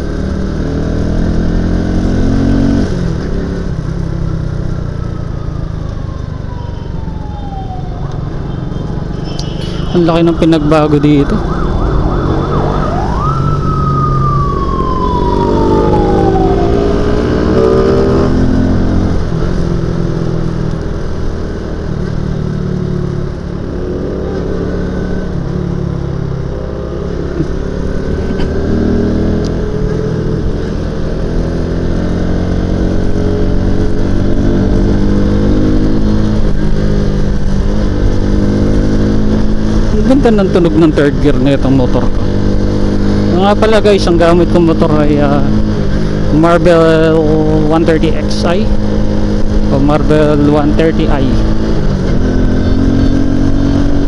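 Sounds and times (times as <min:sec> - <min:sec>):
motorcycle engine accelerating: 0:00.0 - 0:54.0
siren-like tone: 0:04.4 - 0:18.3.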